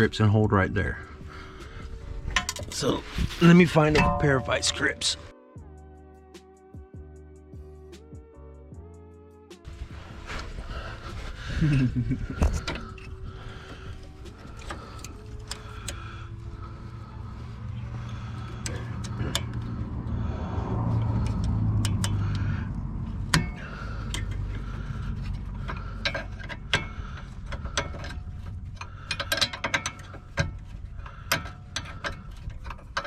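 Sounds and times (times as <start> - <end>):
steady low hum: 9.7 - 33.0.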